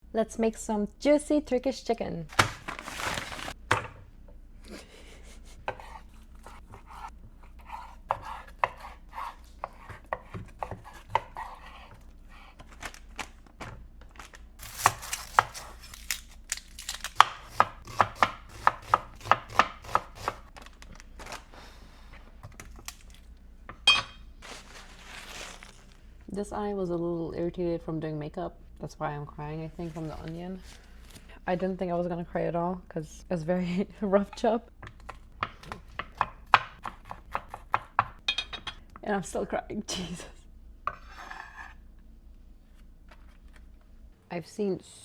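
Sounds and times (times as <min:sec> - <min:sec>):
knife chopping on cutting board: 0:05.7 - 0:12.0, 0:17.2 - 0:20.4, 0:35.1 - 0:38.2.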